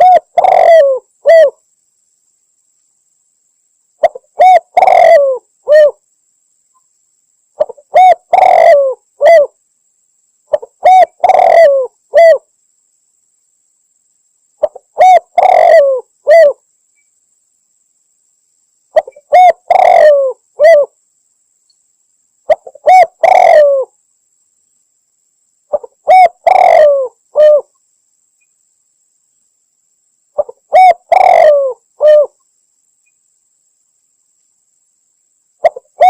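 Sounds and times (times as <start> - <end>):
dove cooing: 0.0 - 1.6, 4.0 - 6.0, 7.6 - 9.6, 10.5 - 12.4, 14.6 - 16.6, 19.0 - 21.0, 22.5 - 24.0, 25.7 - 27.7, 30.4 - 32.4, 35.6 - 36.0.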